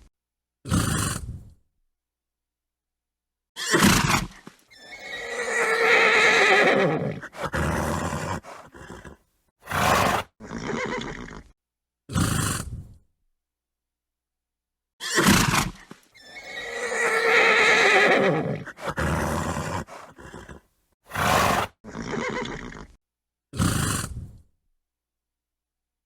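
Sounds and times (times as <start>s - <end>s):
horse snorting: 0.7s - 1.5s, 3.7s - 11.5s, 12.1s - 13.0s, 15.1s - 23.0s, 23.6s - 24.4s
horse whinnying: 3.6s - 11.5s, 15.0s - 23.0s.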